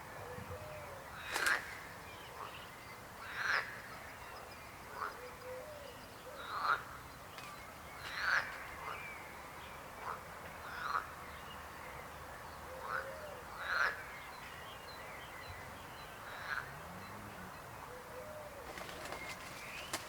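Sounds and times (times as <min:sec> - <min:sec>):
frogs croaking: 0:03.2 - 0:04.0, 0:08.1 - 0:09.0, 0:12.8 - 0:14.1, 0:16.2 - 0:18.0.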